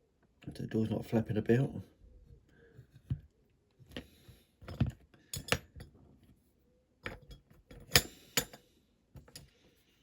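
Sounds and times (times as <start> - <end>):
small tools clinking on workbench: 4.6 - 5.9.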